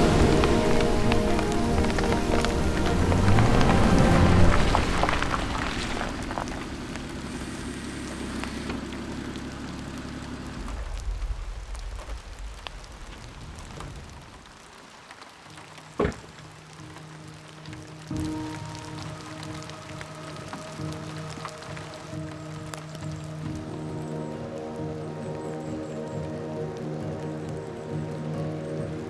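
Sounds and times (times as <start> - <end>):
low hum: 0.0 - 14.3
rain falling: 0.0 - 29.0.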